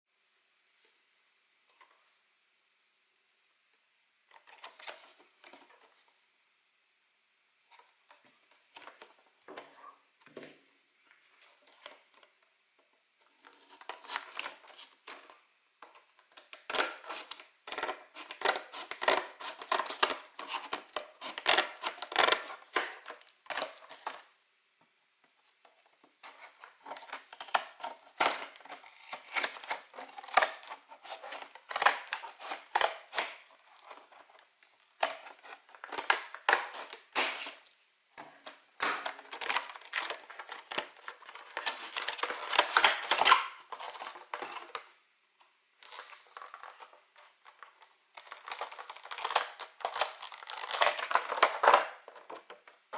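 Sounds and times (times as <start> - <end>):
plastic packaging tearing and crinkling: 16.4 - 24.2, 26.2 - 44.9, 45.8 - 52.9.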